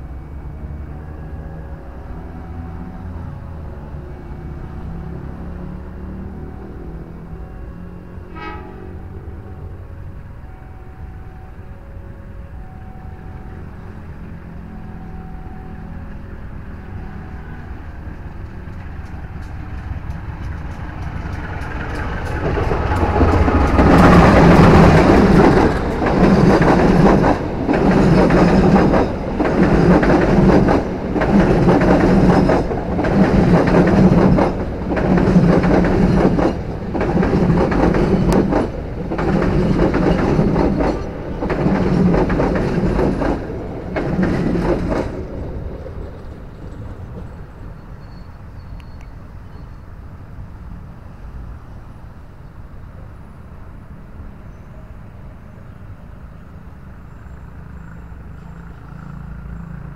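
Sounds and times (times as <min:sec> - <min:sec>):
train wheels clickety-clack over rails: 0:17.1 - 0:49.6.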